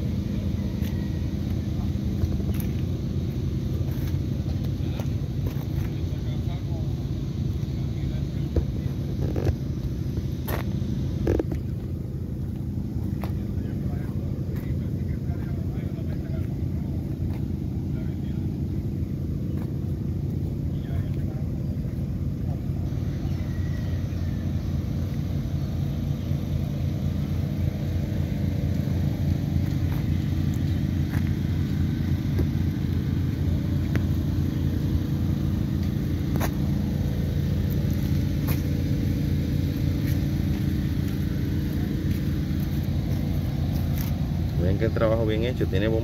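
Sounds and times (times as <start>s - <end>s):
engine idling: 0.0s - 46.0s.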